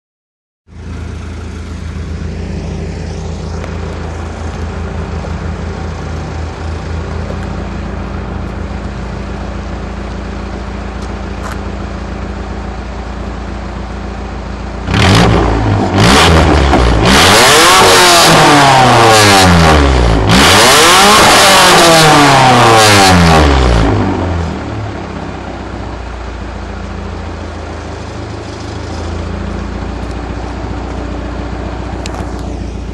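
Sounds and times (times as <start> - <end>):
car engine idling and revving: 0.7 - 32.9.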